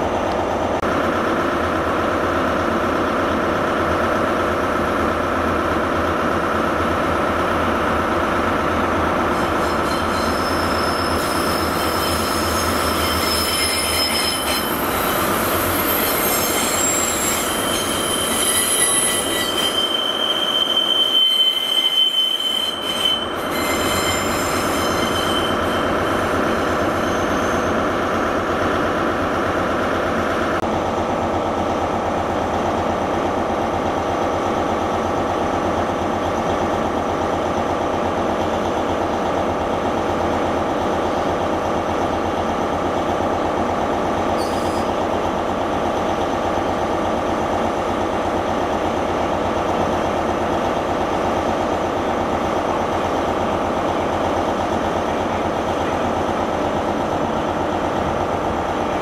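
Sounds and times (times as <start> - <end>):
train rumbling: 0.0 - 59.0
high thin wheel squeal: 9.3 - 28.0, 44.3 - 45.0.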